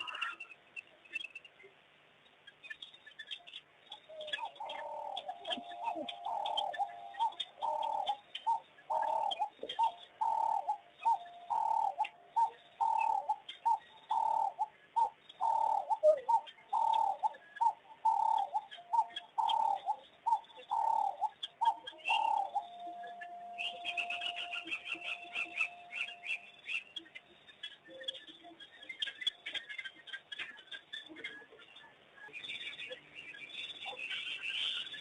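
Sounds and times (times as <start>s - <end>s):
faint chirps and clicks: 0.0s - 35.0s
faint steady tone: 0.0s - 35.0s
bird cooing: 3.9s - 26.8s.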